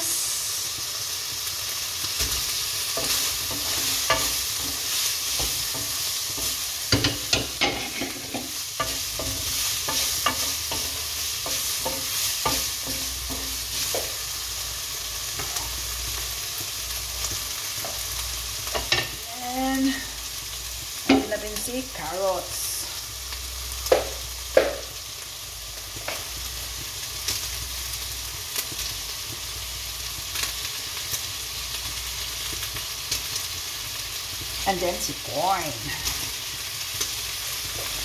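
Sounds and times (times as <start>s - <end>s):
onion sizzling in oil: 0.0s - 38.0s
wooden spatula scraping a pan: 2.9s - 14.2s.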